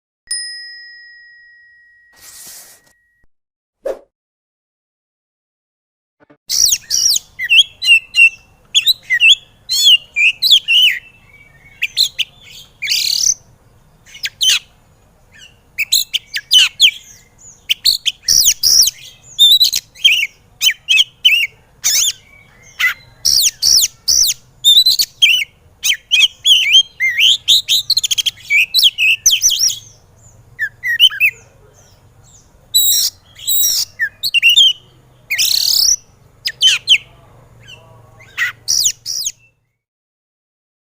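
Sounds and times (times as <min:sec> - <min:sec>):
bird singing whistles and chirps: 0:06.5 - 0:13.4, 0:15.4 - 0:31.4, 0:32.8 - 0:39.8.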